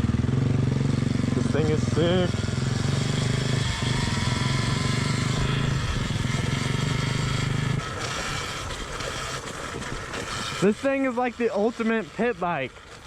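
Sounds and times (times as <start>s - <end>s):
electric dirt bike drone: 0.0s - 13.0s
electric motor whine: 1.0s - 13.0s.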